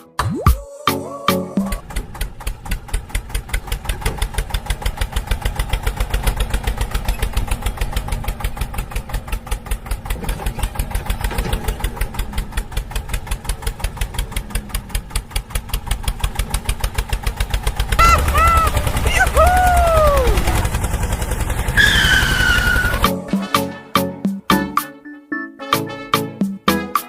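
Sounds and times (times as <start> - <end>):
tractor diesel engine idling: 1.6 - 23.9.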